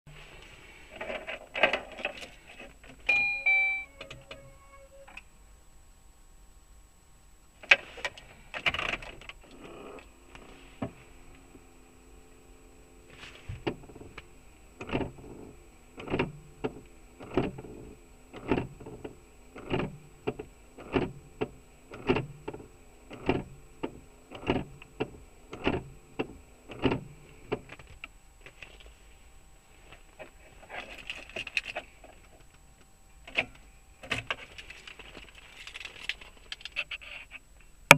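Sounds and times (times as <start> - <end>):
heater blower hum: 7.8 - 36.2.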